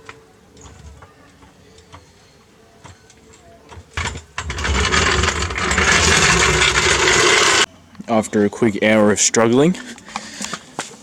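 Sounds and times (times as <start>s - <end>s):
power tool rattling: 4.0s - 7.7s.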